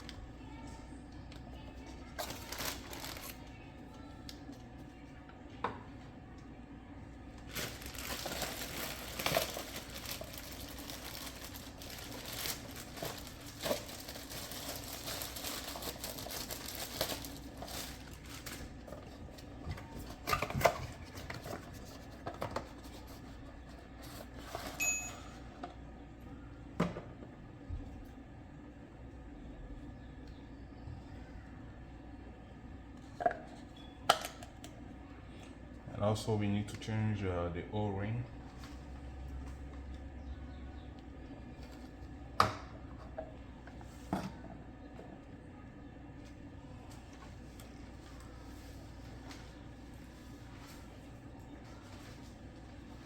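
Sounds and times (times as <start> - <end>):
rustling handling noise: 2.2 - 3.4, 7.4 - 25.0, 46.9 - 53.0.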